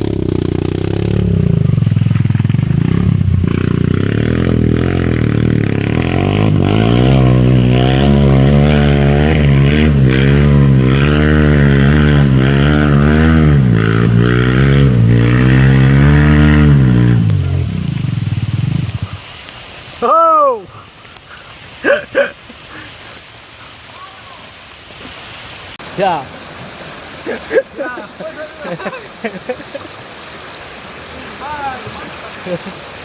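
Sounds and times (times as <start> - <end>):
dirt bike engine revving: 0.0 - 19.2.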